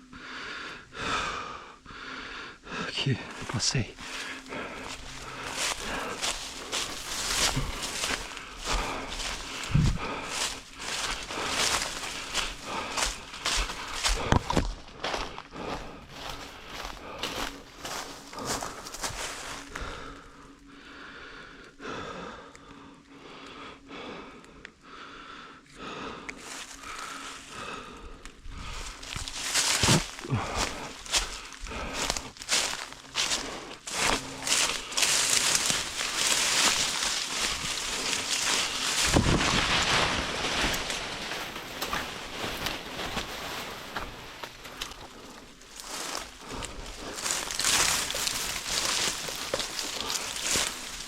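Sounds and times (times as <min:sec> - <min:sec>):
hard rhythmic breathing: 0:00.0 - 0:51.0
wind noise: 0:08.6 - 0:10.3, 0:38.6 - 0:43.4
rustling: 0:32.6 - 0:51.0.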